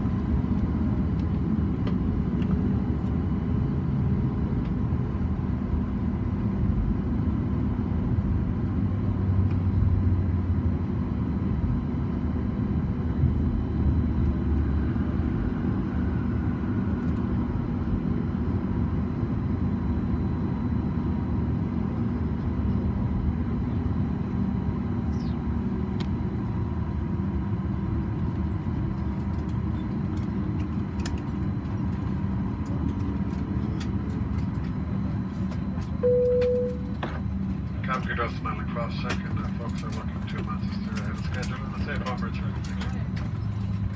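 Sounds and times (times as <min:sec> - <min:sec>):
air conditioning: 0:00.0 - 0:43.9
idling jet engines rumble: 0:00.0 - 0:43.9
steady hum: 0:34.8 - 0:42.6
faint falling whine: 0:36.0 - 0:37.4.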